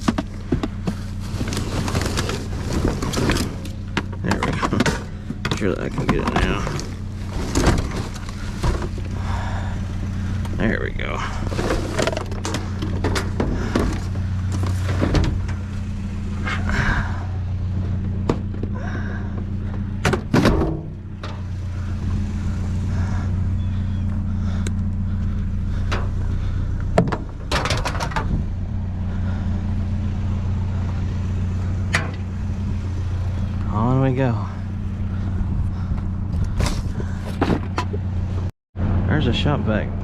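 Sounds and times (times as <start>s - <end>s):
sharp thunks and knocks: 0.0s - 1.0s, 18.0s - 18.8s, 20.0s - 21.5s, 26.8s - 28.5s, 36.0s - 38.0s
vehicle engine running: 0.0s - 40.0s.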